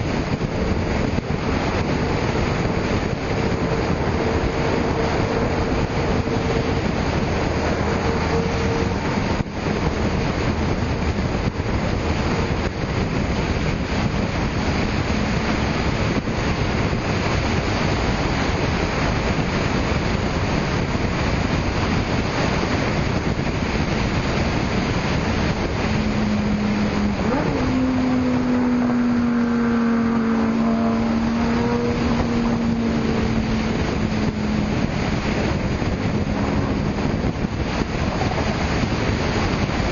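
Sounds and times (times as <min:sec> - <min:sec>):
car traffic: 0:00.0 - 0:39.9
wind rush on microphone: 0:00.0 - 0:39.9
car engine passing by: 0:24.0 - 0:39.9.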